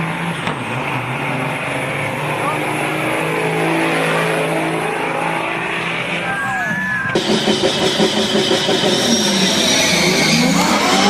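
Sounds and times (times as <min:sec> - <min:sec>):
diesel engine running: 0:07.2 - 0:11.0
pulsing engine note: 0:07.2 - 0:11.0.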